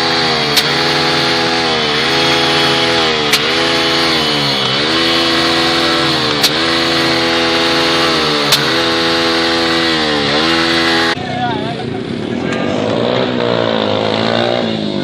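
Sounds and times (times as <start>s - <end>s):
motorcycle engine revving: 0.0s - 15.0s
engine misfire pops: 0.4s - 11.1s.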